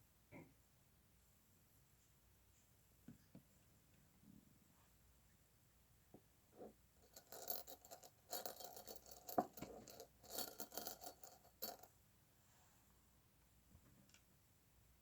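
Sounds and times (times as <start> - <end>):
small objects clicking and rattling: 7.0 - 11.9.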